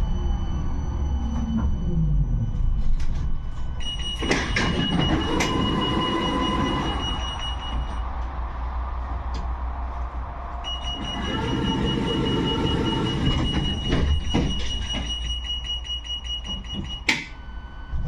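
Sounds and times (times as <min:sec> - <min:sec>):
tram rumbling on rails: 0:04.3 - 0:15.1
wheels squealing on rails: 0:10.6 - 0:14.2.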